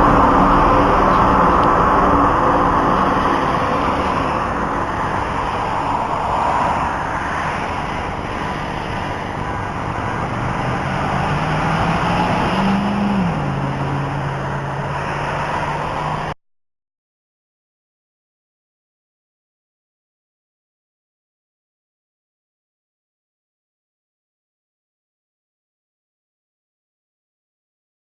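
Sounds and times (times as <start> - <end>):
low droning hum: 0.0 - 16.3
road traffic noise: 0.0 - 16.4.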